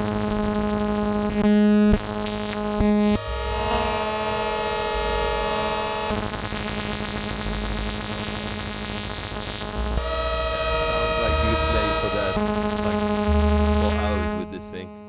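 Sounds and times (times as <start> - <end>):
buzzy synthesizer tones: 0.1 - 15.0
low pulsing bass: 9.6 - 15.0.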